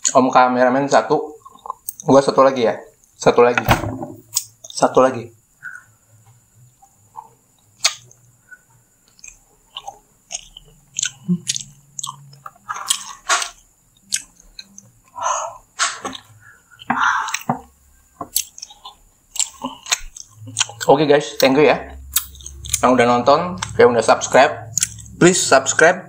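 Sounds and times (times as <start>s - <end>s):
chewing with smacking clicks: 1.4s - 2.1s, 7.2s - 8.4s, 9.0s - 15.2s, 16.0s - 25.4s.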